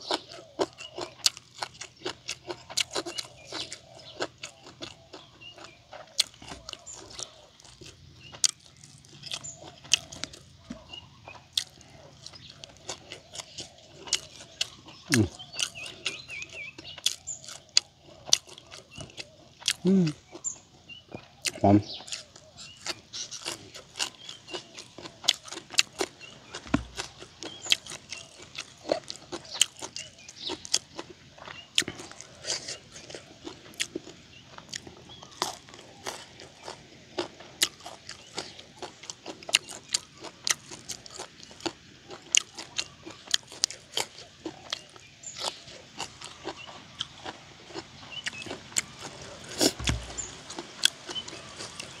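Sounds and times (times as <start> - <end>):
chewing and crunching: 0.0 - 52.0
wet mouth clicks: 26.6 - 27.9, 49.6 - 51.2
dull thump: 49.8 - 50.2.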